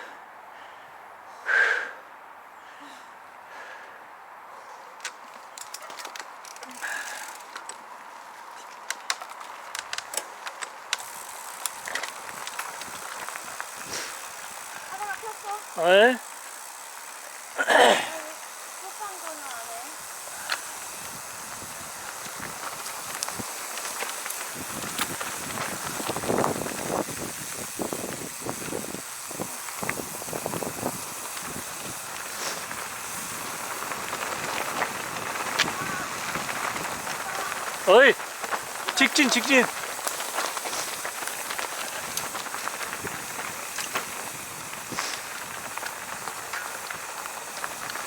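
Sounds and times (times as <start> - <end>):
mountain bike rolling on dirt: 4.6 - 48.0
steady hiss: 10.8 - 48.0.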